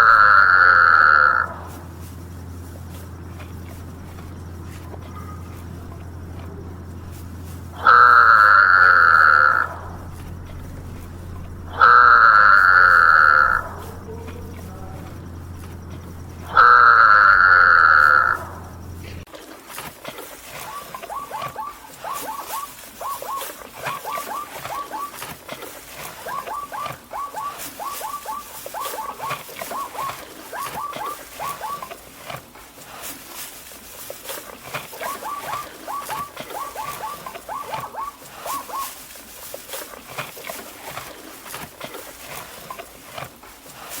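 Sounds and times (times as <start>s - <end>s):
rustling: 0.0s - 44.0s
small animal squeaking: 2.9s - 19.2s, 20.5s - 32.0s, 34.9s - 39.1s.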